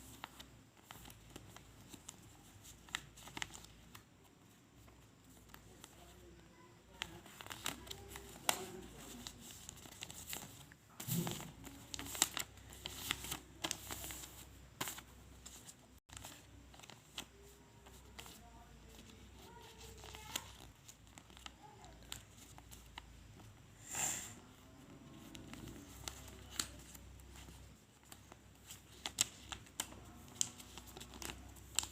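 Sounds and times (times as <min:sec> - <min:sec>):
paper being folded and creased: 0:00.0 - 0:23.5, 0:24.4 - 0:31.9.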